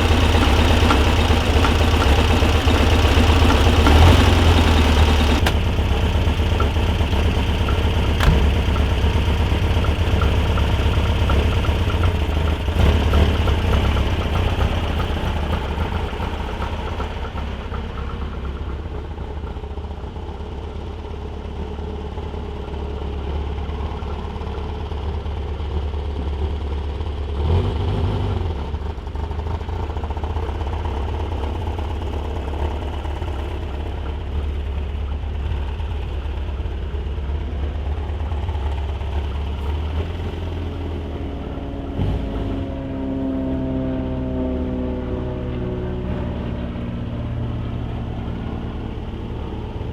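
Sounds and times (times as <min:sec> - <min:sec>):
air-cooled engine idling: 0:00.0 - 0:27.3, 0:28.9 - 0:41.6, 0:43.6 - 0:49.9
faint engine ticking: 0:00.0 - 0:27.9, 0:28.5 - 0:42.0, 0:43.4 - 0:49.9.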